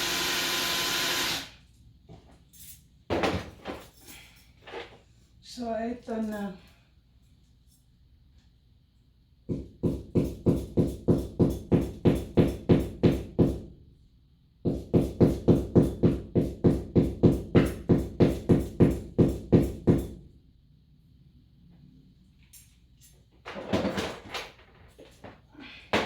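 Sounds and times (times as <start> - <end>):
hammer striking a nail: 9.5 - 13.7, 14.6 - 20.2.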